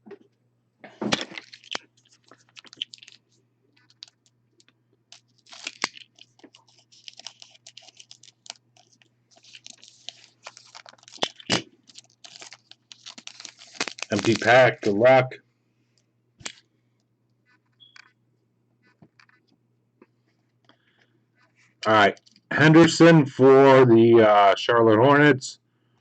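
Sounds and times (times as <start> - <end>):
foil pack tearing: 1.1 - 3.2, 5.1 - 15.0
cards and wrappers crinkling: 1.1 - 15.2.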